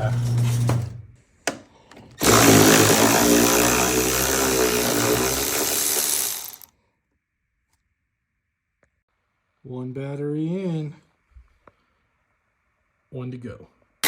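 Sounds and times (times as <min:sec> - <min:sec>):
power tool motor running: 0:02.2 - 0:06.7.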